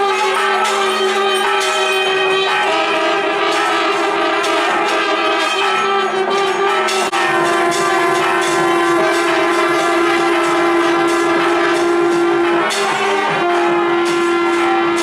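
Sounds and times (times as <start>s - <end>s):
nadaswaram long held notes: 0.0s - 15.0s
percussion: 0.0s - 15.0s
steady drone: 7.0s - 15.0s.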